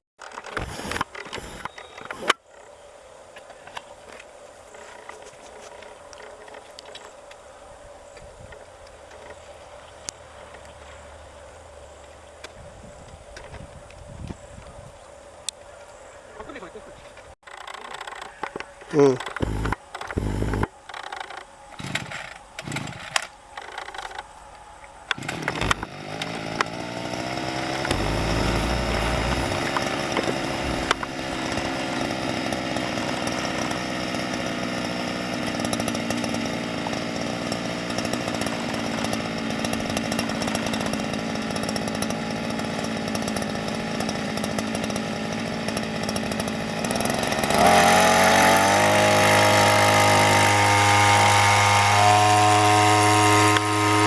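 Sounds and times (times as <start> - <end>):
small petrol boat engine running: 0.4 - 2.3, 19.3 - 20.7, 25.2 - 54.0.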